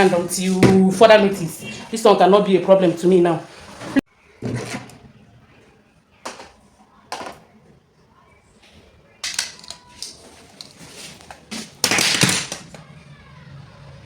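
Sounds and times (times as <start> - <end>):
clattering rustling noise: 8.7 - 12.8.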